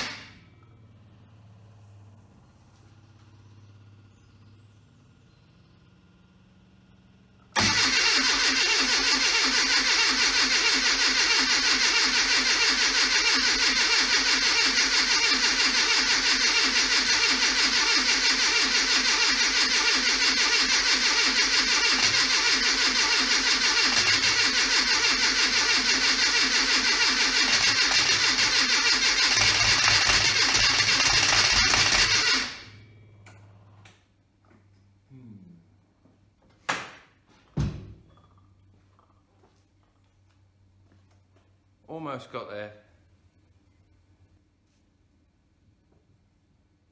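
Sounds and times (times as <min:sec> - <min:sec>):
engine cranking on starter motor: 0:00.0 - 0:00.4, 0:07.4 - 0:33.2.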